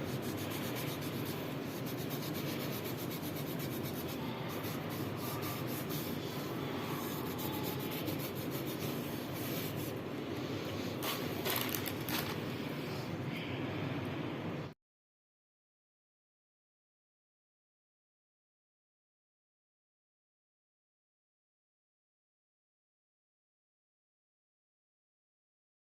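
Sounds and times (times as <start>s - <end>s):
cotton rubbing on ceramic plate: 0.0s - 10.0s.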